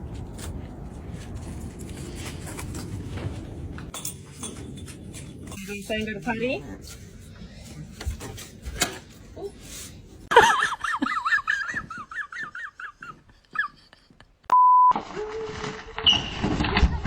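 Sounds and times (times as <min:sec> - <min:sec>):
short electronic beep: 0:14.5 - 0:15.0.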